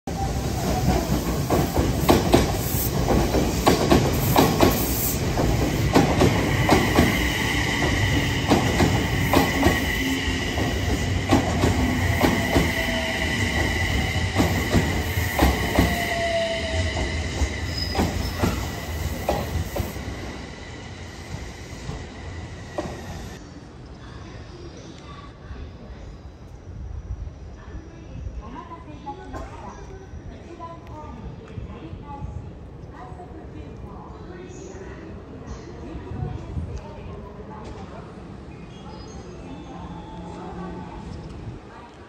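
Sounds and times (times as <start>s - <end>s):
steady high squeal: 6.4s - 23.4s.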